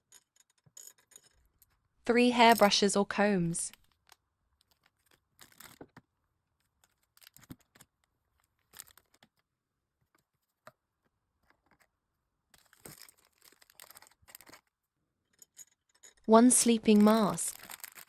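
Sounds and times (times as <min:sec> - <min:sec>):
plastic packaging crinkling: 0:12.6 - 0:14.6, 0:16.7 - 0:18.0.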